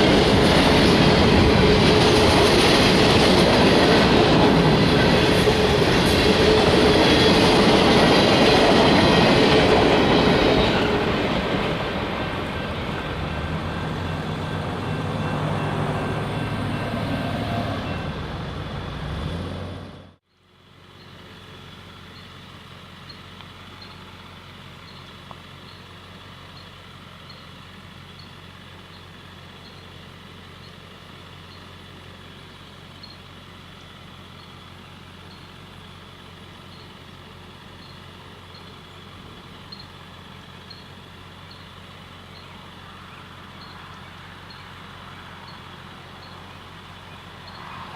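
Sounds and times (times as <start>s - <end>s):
freight train rumbling past: 0.0s - 20.2s, 37.8s - 47.9s.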